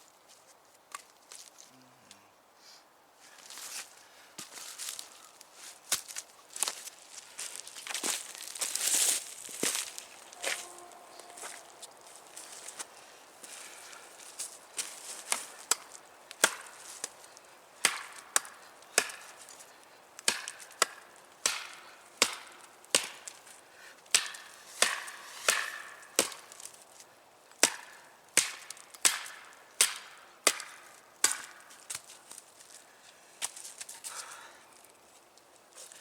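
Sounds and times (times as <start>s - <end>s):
machete chopping wood: 15.3s - 17.2s, 17.8s - 19.4s, 20.2s - 23.4s, 24.1s - 26.5s, 27.6s - 32.0s.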